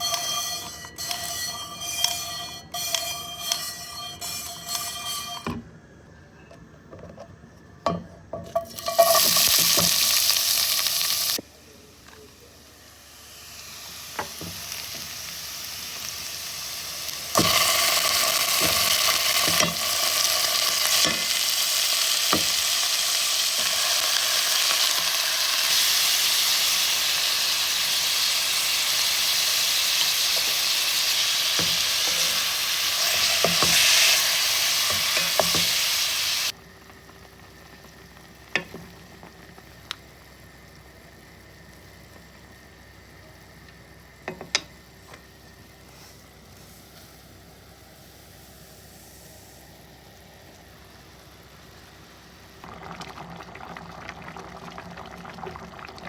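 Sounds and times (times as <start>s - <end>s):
utensil scraping a pan: 0.0s - 5.6s, 30.1s - 36.1s
food sizzling in a pan: 8.6s - 11.4s, 12.5s - 44.0s, 45.6s - 56.0s.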